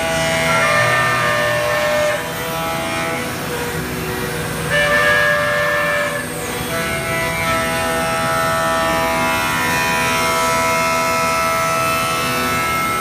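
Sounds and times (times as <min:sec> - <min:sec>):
cnc router carving wood: 0:00.0 - 0:13.0.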